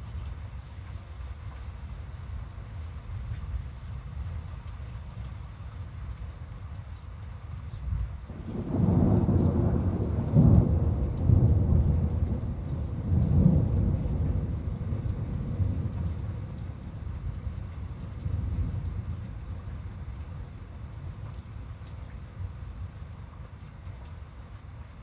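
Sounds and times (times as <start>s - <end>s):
rolling thunder: 8.3s - 20.4s.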